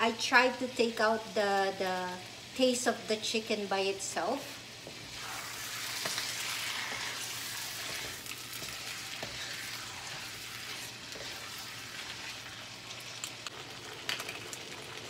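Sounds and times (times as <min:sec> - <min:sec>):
chicken sizzling in a wok: 0:00.0 - 0:15.0
wooden spatula scraping a pan: 0:04.8 - 0:12.8.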